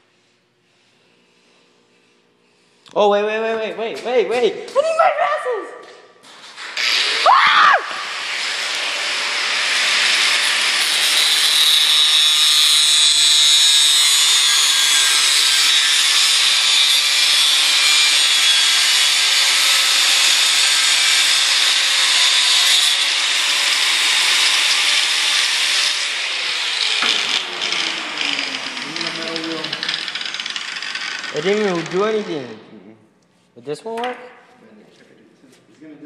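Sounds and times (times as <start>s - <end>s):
power grinder grinding: 6.6s - 32.6s.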